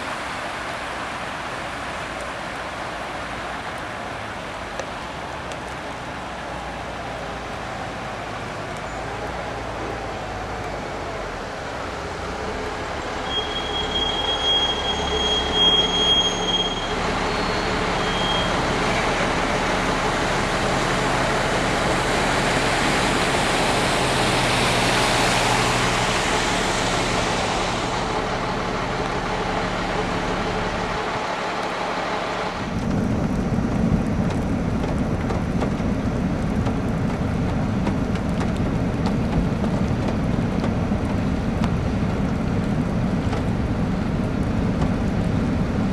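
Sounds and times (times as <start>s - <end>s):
tyres spraying flood water: 0.0s - 45.9s
steady low rumble: 18.8s - 45.9s.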